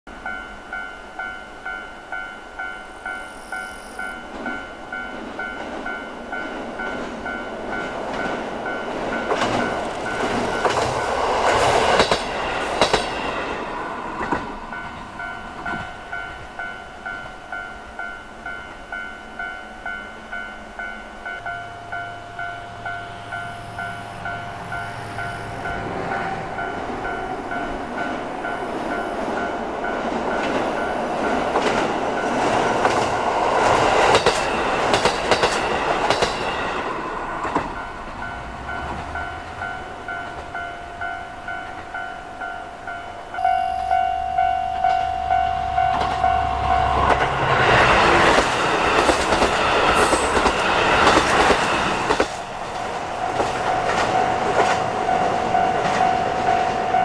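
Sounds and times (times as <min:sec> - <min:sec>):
steady held train horn tone: 0:00.1 - 0:04.9, 0:40.6 - 0:49.0
train wheels clacking over rail joints: 0:06.8 - 0:16.0, 0:26.1 - 0:39.6, 0:46.9 - 0:57.0.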